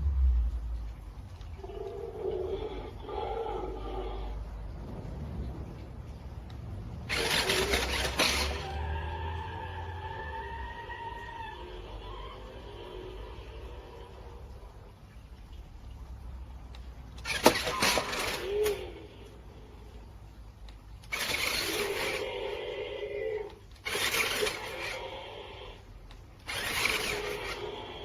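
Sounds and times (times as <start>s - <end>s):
toy truck electric motor whirring: 7.0s - 14.3s, 17.2s - 19.1s, 21.0s - 23.0s, 23.7s - 25.8s, 26.4s - 28.0s.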